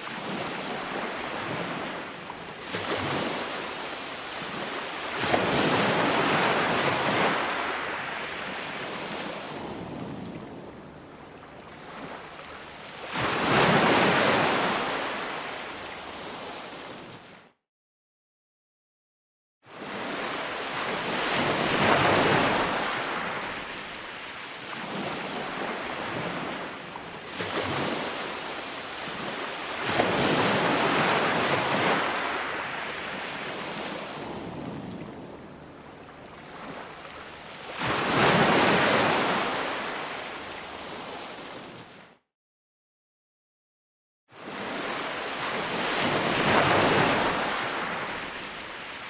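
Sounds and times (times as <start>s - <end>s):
ocean waves breaking: 0.0s - 17.4s, 19.8s - 42.0s, 44.4s - 49.0s.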